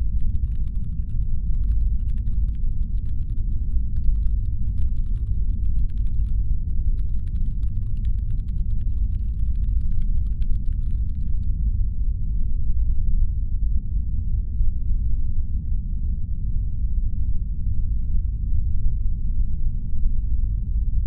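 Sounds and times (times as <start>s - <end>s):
faint rapid clicking: 0.0s - 11.6s
deep brown noise rumble: 0.0s - 21.0s.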